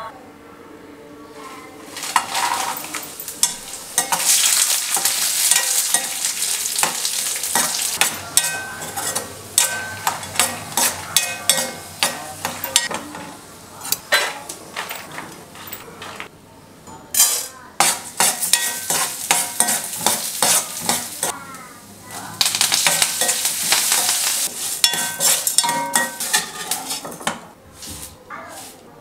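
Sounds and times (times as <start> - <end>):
metal spatula scraping pan: 1.9 - 13.4, 17.2 - 21.4, 22.1 - 27.4
food sizzling in hot oil: 2.0 - 13.0, 17.2 - 27.1.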